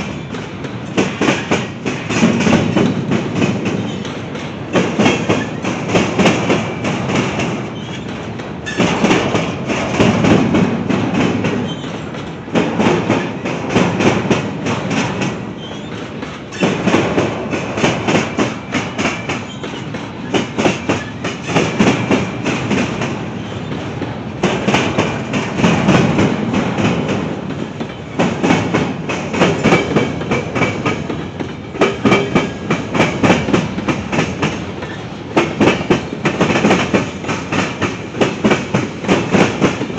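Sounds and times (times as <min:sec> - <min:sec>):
train wheels clattering over rail joints: 0:00.0 - 0:39.9.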